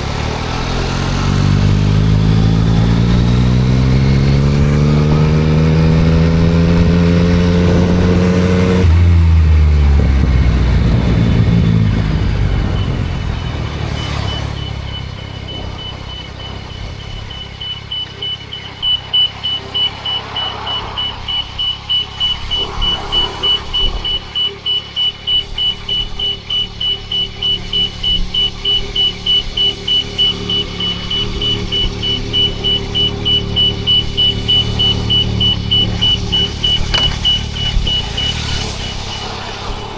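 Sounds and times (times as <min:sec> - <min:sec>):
motorcycle engine revving and idling: 0:00.0 - 0:39.9
high electronic beep: 0:11.2 - 0:39.9.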